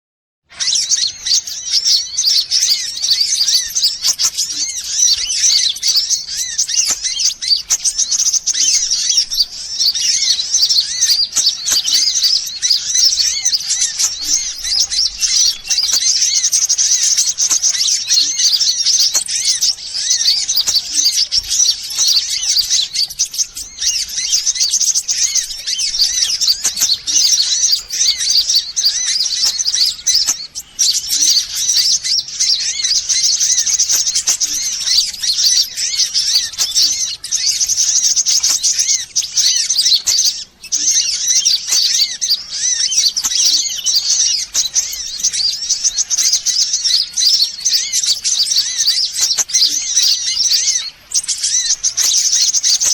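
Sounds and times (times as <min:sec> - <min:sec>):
sunbird chirps and twitters: 0:00.5 - 0:52.9.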